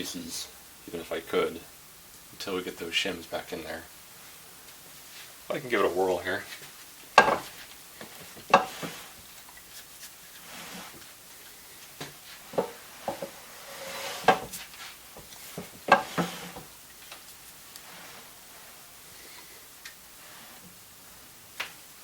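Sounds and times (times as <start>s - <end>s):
metal clunks and knocks: 7.2s - 7.5s.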